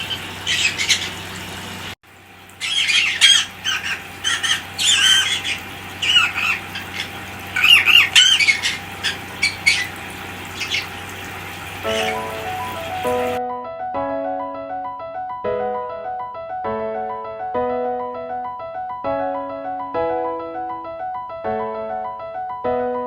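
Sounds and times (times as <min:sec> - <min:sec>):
parrots squawking and chirping: 0:00.0 - 0:01.9, 0:02.5 - 0:13.4.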